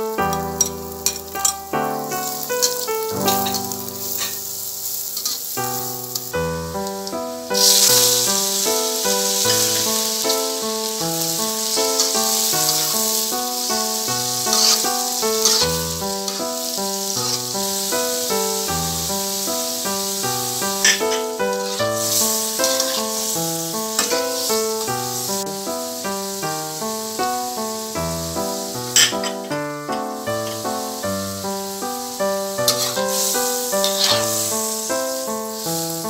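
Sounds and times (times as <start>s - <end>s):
background music: 0.0s - 36.0s
food sizzling in a wok: 0.0s - 36.0s
metal spatula clicking and scraping: 0.3s - 1.6s, 2.6s - 4.4s, 5.2s - 5.4s, 14.5s - 14.8s, 15.4s - 16.4s, 22.6s - 23.1s, 32.7s - 33.1s, 33.8s - 34.3s.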